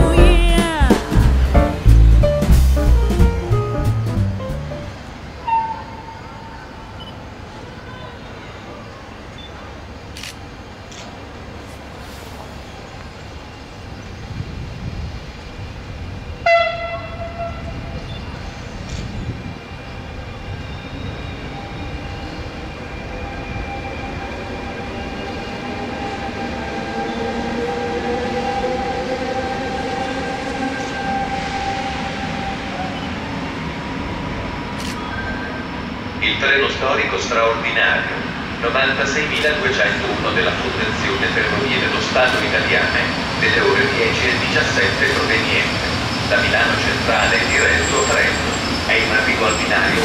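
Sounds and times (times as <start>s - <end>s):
train rumbling: 0.0s - 50.0s
train horn blast: 16.4s - 18.0s.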